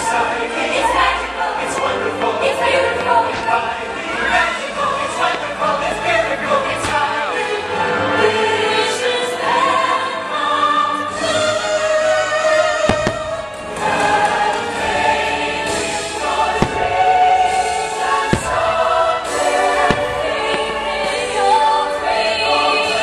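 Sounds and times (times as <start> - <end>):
choir singing sustained notes: 0.0 - 23.0
fireworks bursting: 1.7 - 7.6, 11.7 - 23.0.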